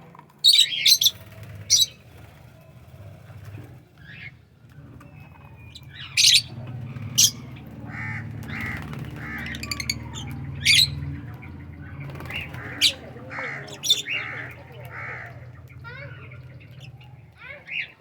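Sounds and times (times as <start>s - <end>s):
harsh bird squawks: 0.5s - 1.9s, 5.9s - 11.0s, 12.2s - 16.3s.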